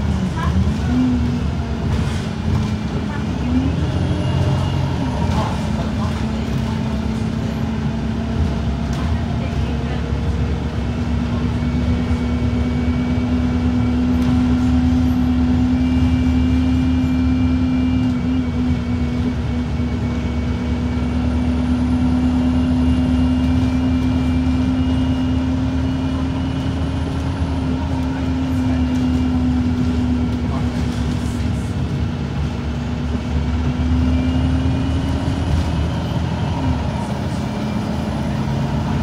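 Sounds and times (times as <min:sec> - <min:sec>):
bus diesel engine droning: 0:00.0 - 0:39.0.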